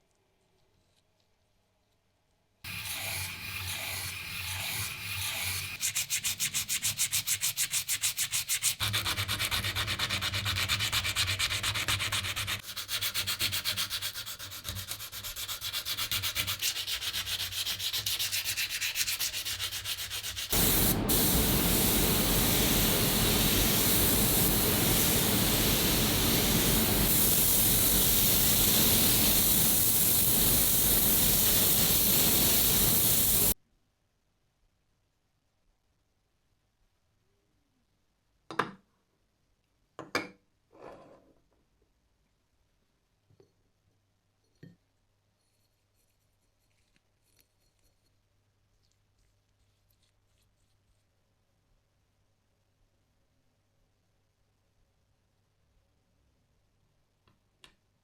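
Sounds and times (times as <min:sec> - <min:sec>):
sanding rasping: 0:02.7 - 0:33.6
loud steady hiss: 0:20.5 - 0:33.6
low rumble: 0:20.6 - 0:26.0.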